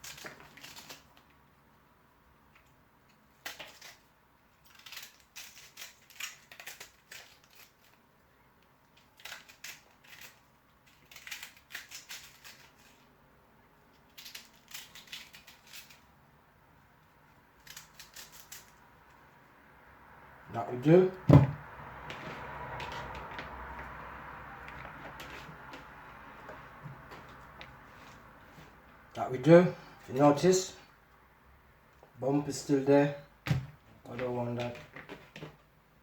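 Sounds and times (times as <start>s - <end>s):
knife chopping on board: 21.3s - 21.6s.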